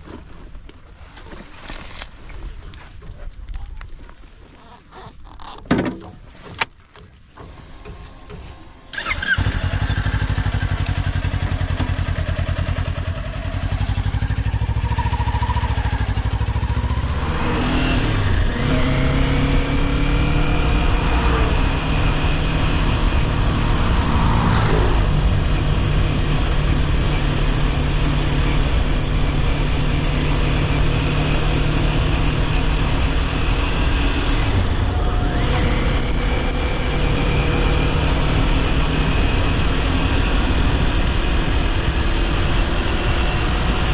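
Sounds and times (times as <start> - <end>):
motorcycle engine revving: 7.4 - 43.9.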